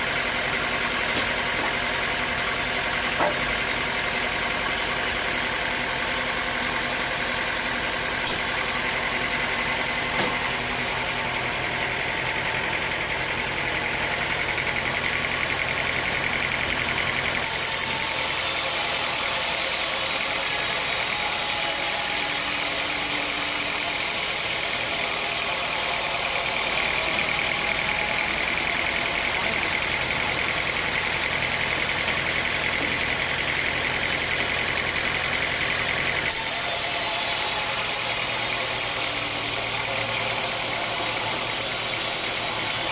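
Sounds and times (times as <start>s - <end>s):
engine hum: 0.0s - 42.9s
saw hissing: 17.4s - 29.5s, 36.3s - 42.9s.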